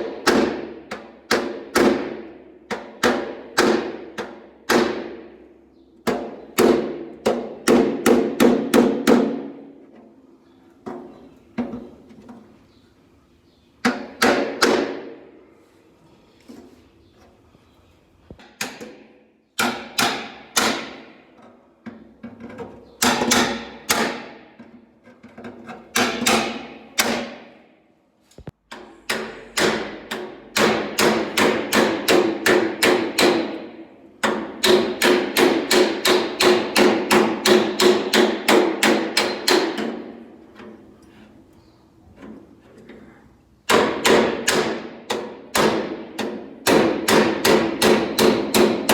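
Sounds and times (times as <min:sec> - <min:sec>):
hammer striking sheet steel: 0:00.0 - 0:05.3, 0:18.4 - 0:21.2, 0:23.0 - 0:24.6, 0:25.9 - 0:27.6, 0:28.7 - 0:40.2, 0:43.6 - 0:48.9.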